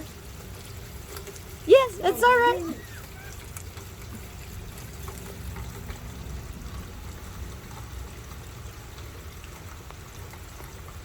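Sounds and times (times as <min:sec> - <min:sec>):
steady rain: 0:00.0 - 0:11.0
water pouring and trickling: 0:00.0 - 0:11.0.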